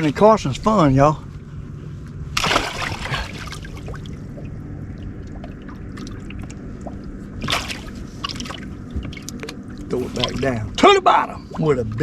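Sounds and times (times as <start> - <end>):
steady low hum: 0.0 - 12.0
water trickling and sloshing: 1.3 - 12.0
water splash: 2.4 - 4.5, 5.1 - 10.6.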